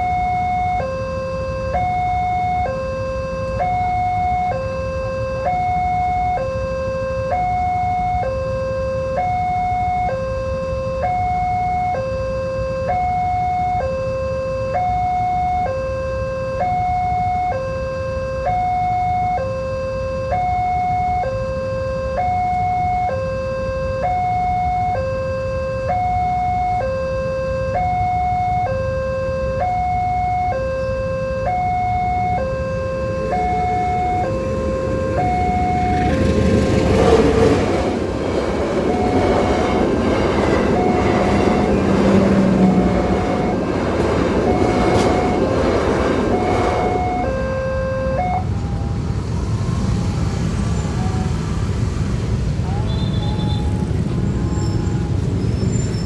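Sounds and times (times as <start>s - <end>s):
level crossing two-tone alarm: 0.0s - 51.2s
steady low rumble: 31.7s - 49.0s.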